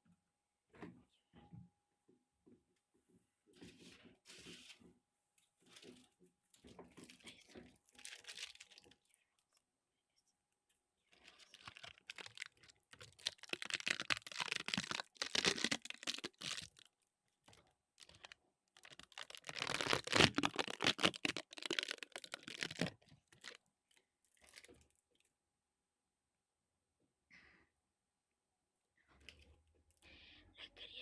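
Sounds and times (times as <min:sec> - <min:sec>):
water splashing and crackling: 0:11.4 - 0:16.8, 0:18.0 - 0:23.6.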